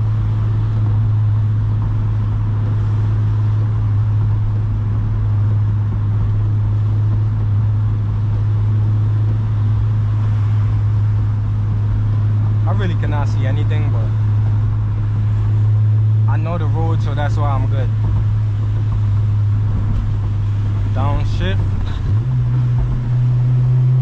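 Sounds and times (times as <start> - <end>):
car engine and exhaust droning: 0.0 - 24.0.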